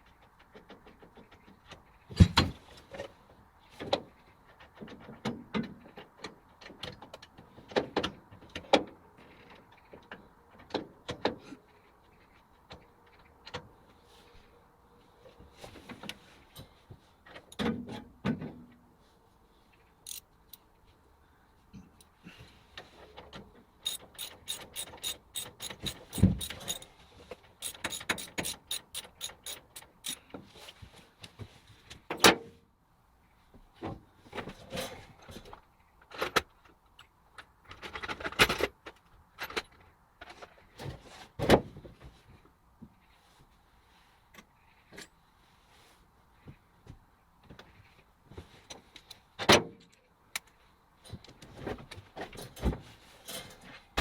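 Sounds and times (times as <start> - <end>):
metallic clicks of machine parts: 20.0 - 20.6, 23.8 - 26.9, 27.6 - 30.2.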